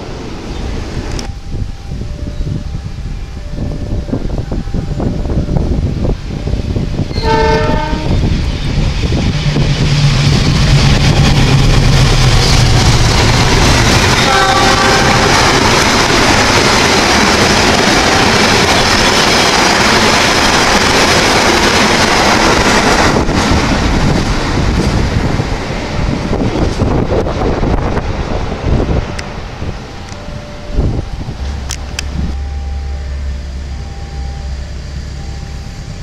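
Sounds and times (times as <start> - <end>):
diesel locomotive engine drone: 0.0 - 36.0
wheels on rails: 0.0 - 36.0
train horn blast: 7.1 - 8.3, 13.8 - 16.6.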